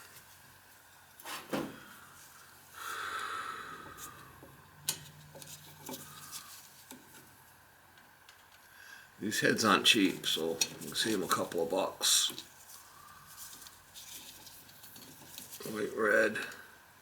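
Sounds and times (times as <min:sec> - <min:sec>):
short breathy hiss: 0:01.2 - 0:04.4
light clicks and handling noises: 0:04.0 - 0:08.7, 0:09.9 - 0:16.7.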